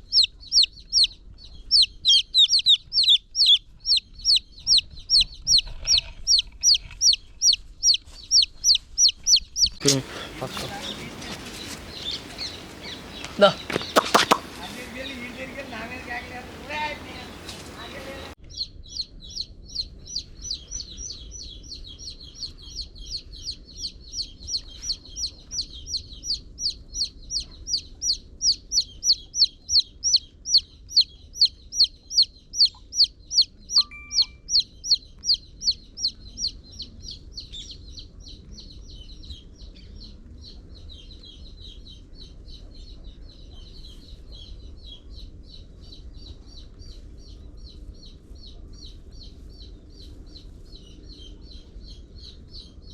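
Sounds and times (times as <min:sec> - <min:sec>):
chick peeping loudly: 0:00.0 - 0:39.4
chicks chirping faintly: 0:00.0 - 0:52.9.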